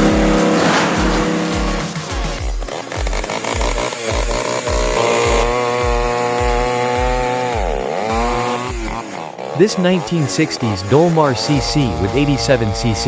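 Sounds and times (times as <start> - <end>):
low thumping beat: 0.0 - 9.0
chainsaw engine running at high revs: 0.0 - 13.0.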